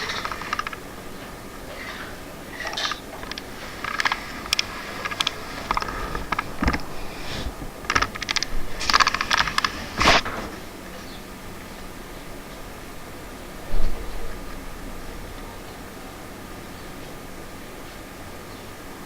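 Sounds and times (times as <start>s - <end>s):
sharp clicks and clatters: 0.0s - 10.6s.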